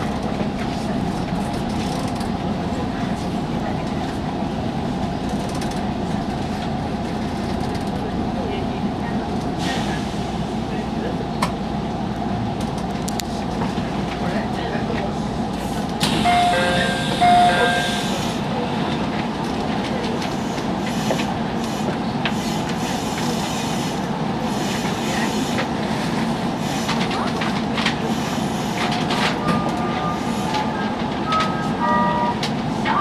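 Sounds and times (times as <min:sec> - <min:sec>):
electric train hum: 0:00.0 - 0:33.0.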